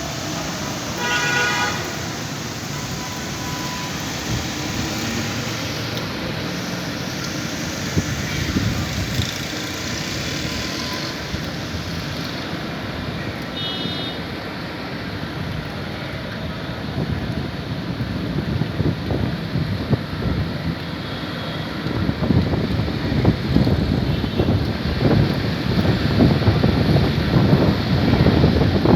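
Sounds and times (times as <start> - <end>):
rain hissing: 0.0 - 14.2
traffic on wet street: 0.0 - 28.9.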